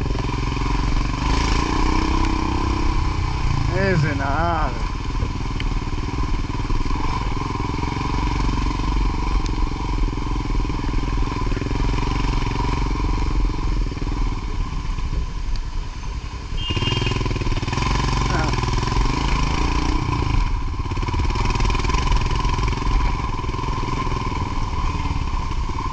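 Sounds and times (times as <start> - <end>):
rushing noise: 0.0 - 10.0
motorcycle engine running: 0.0 - 25.9.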